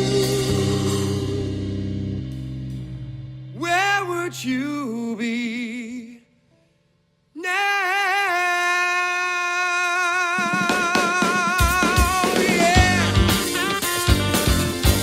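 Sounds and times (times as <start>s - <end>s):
person singing with vibrato: 0.0s - 2.2s, 3.5s - 6.4s, 7.3s - 13.9s.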